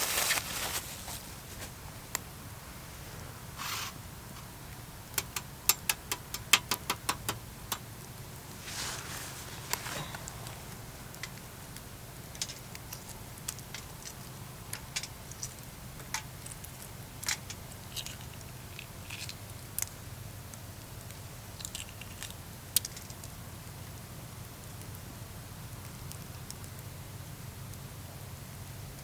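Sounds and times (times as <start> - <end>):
campfire crackling and popping: 4.7 - 27.9.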